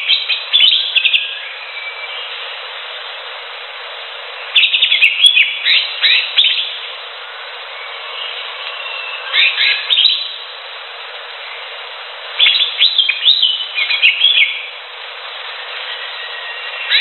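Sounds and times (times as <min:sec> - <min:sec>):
bird singing sweeping chirps: 0:00.0 - 0:02.6, 0:04.4 - 0:10.5, 0:12.4 - 0:14.8, 0:15.4 - 0:17.0
steady hiss: 0:00.0 - 0:17.0.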